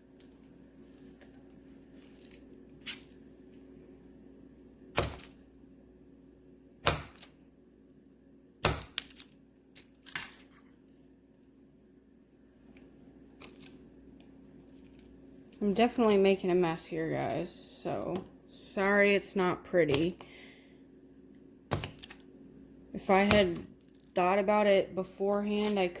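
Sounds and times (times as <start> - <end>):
knife chopping hard wax: 4.9 - 5.4, 6.8 - 7.3, 8.6 - 9.1, 23.2 - 23.7.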